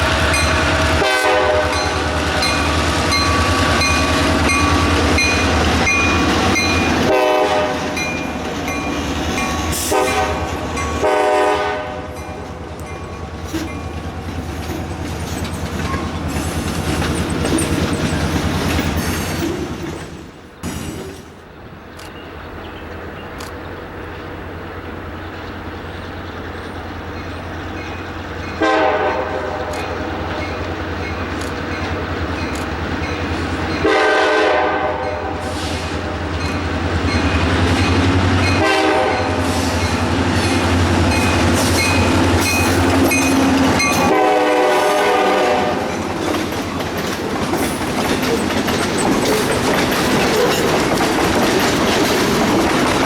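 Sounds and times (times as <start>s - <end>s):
locomotive engine rumble: 0.0s - 53.0s
train cars clattering: 0.0s - 53.0s
locomotive horn blasts: 0.3s - 2.2s, 7.0s - 8.0s, 9.7s - 12.2s, 28.6s - 30.2s, 33.8s - 35.7s, 38.5s - 39.6s, 43.0s - 46.0s.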